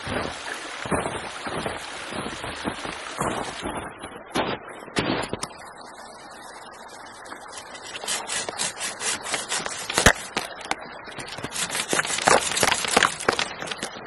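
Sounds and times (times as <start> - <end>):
hand saw cutting wood: 7.6 - 13.9.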